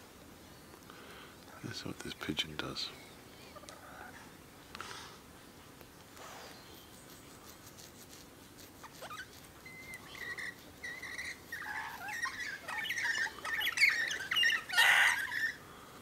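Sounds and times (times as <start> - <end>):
birds chirping and squawking: 8.8 - 15.6.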